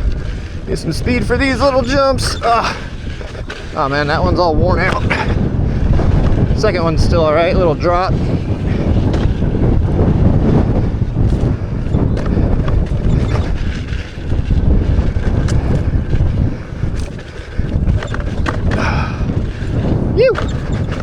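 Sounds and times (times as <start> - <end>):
wheel knocking on bumps: 0.0 - 21.0
wind buffeting microphone: 0.0 - 21.0.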